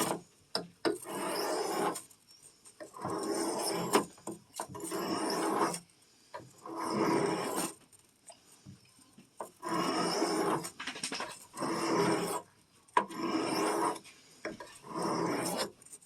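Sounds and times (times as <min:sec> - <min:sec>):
knife scraping on sharpening stone: 0:01.0 - 0:02.1, 0:02.8 - 0:05.8, 0:06.6 - 0:07.7, 0:09.5 - 0:12.4, 0:13.0 - 0:15.8.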